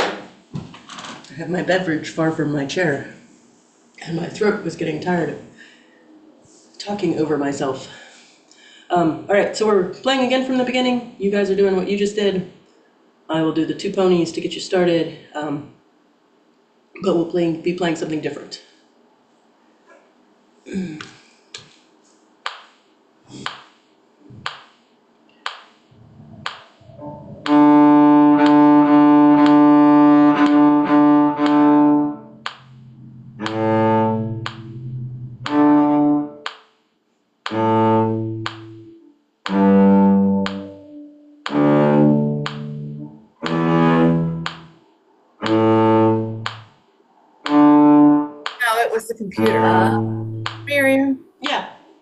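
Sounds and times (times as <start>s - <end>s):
low bowed string instrument: 26.0s - 36.4s, 37.5s - 44.7s, 45.4s - 46.6s, 47.4s - 48.4s, 49.4s - 50.7s.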